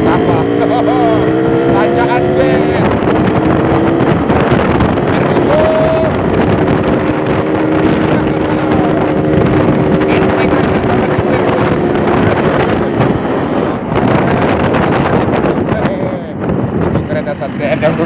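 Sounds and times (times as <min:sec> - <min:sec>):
motorcycle two-stroke engine running: 0:00.0 - 0:13.7
wind buffeting microphone: 0:00.0 - 0:18.0.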